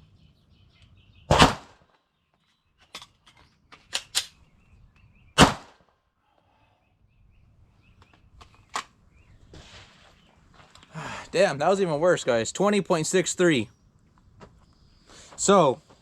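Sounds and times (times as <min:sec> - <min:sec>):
rifle shots: 0:01.3 - 0:01.8, 0:05.4 - 0:05.8
metallic clicks of rifle action: 0:02.8 - 0:04.4.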